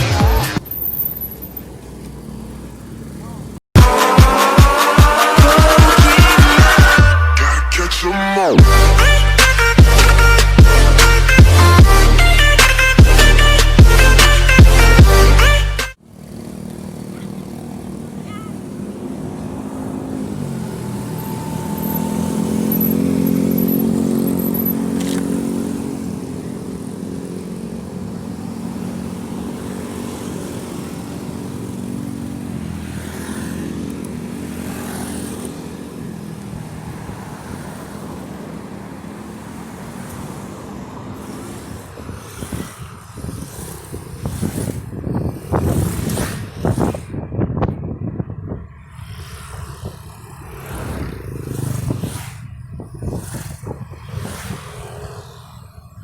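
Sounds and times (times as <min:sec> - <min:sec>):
vehicle engine passing close: 0:16.0 - 0:38.4, 0:39.2 - 0:56.0
distant traffic engine noise: 0:16.0 - 0:47.2.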